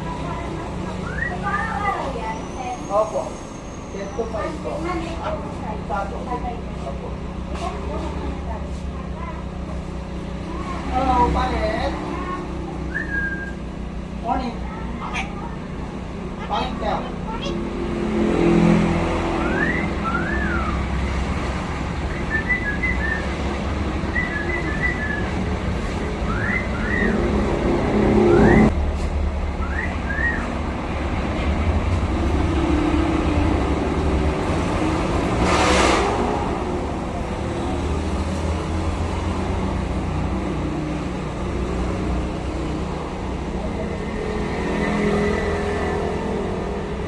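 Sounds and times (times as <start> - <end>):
engine rumble: 0.0 - 47.0
myna whistled calls: 0.9 - 4.4, 12.8 - 13.7, 19.3 - 21.1, 22.0 - 28.7, 29.6 - 30.7.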